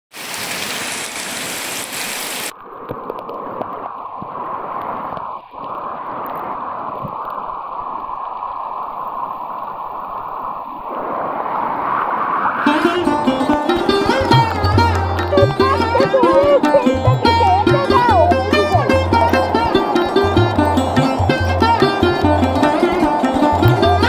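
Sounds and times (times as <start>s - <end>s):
heavy rain splashing into water: 0.1s - 24.0s.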